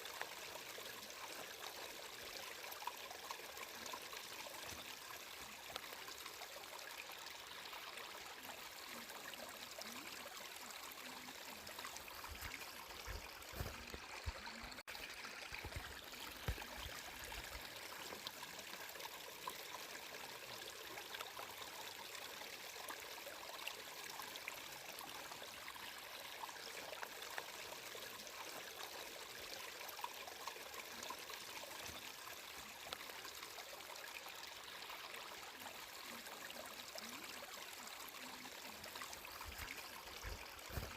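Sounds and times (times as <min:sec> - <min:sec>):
water trickling: 0:00.0 - 0:40.9.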